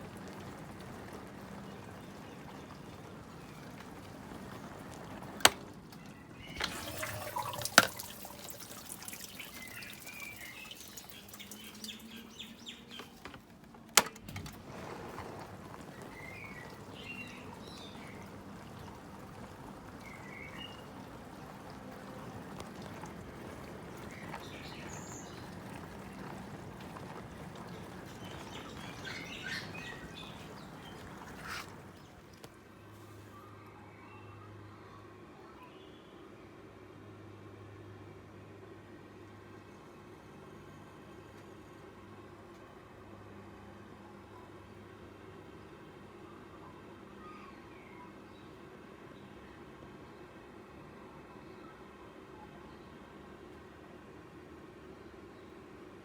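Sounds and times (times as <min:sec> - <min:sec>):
water sloshing and trickling: 0:00.0 - 0:33.3
dishwasher running: 0:00.1 - 0:32.5.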